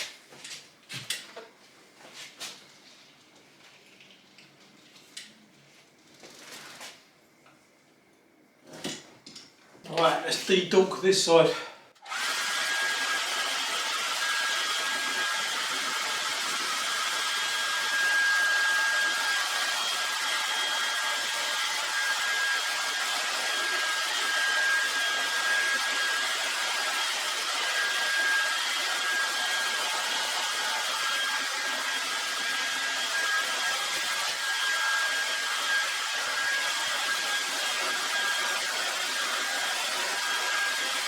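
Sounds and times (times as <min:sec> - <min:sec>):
hot-air blower whining: 0:10.0 - 0:41.0.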